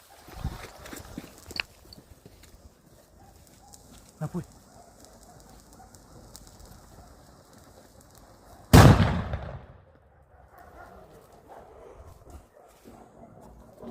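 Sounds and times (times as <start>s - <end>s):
faint hiss: 2.4s - 9.1s
firecracker bang: 8.7s - 9.9s.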